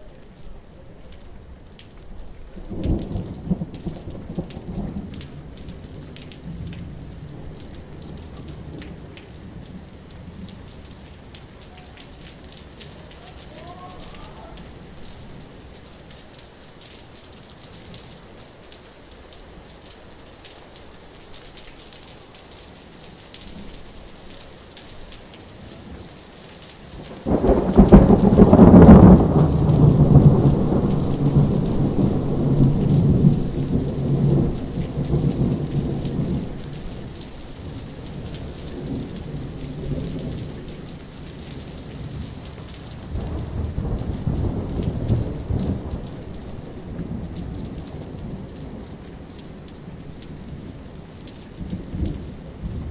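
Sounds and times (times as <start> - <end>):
steady rain falling: 0.0 - 52.9
thunder rumbling: 2.2 - 15.6, 27.0 - 52.9.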